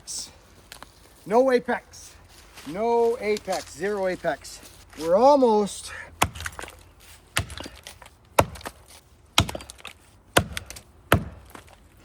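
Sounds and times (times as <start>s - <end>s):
axe chopping tree trunk: 6.2s - 11.8s.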